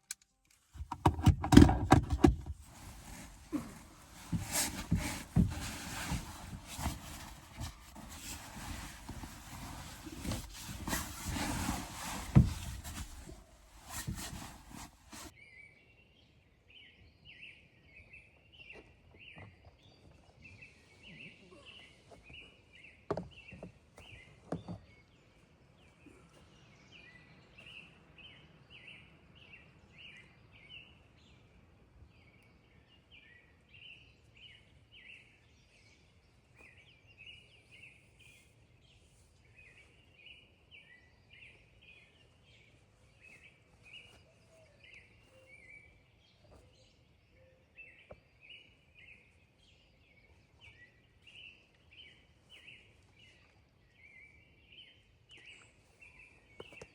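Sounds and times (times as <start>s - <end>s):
faint bird chirps: 15.4s - 31.4s, 32.3s - 56.9s.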